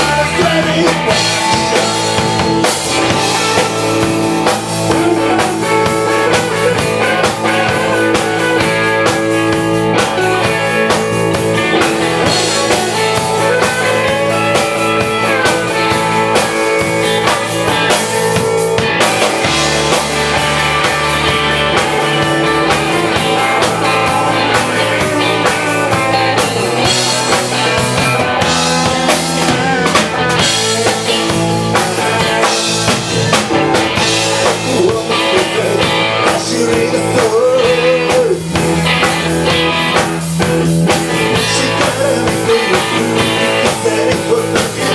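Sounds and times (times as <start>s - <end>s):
drum kit: 0.0s - 44.9s
electric guitar: 0.0s - 44.9s.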